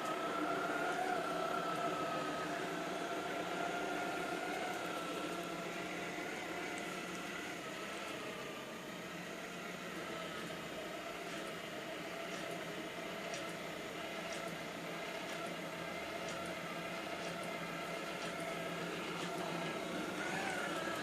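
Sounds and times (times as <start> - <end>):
robot vacuum cleaner whirring: 0.0 - 21.0.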